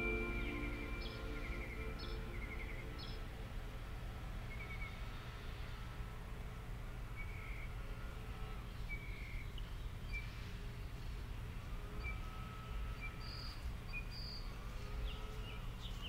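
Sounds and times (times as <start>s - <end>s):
bird chirps: 0.0s - 3.3s
low rumble: 0.0s - 4.2s.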